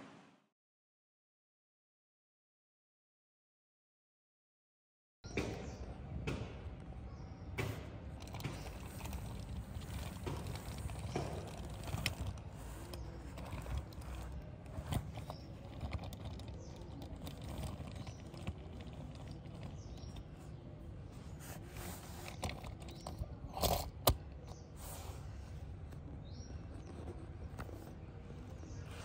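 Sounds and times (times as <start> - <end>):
plastic toy clicks and scrapes: 8.2 - 20.6, 21.4 - 24.6.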